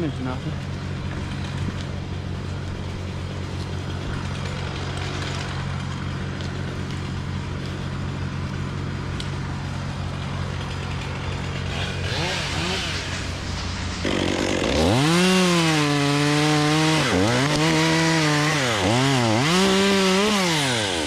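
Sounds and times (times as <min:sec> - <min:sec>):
engine idling: 0:00.0 - 0:14.9.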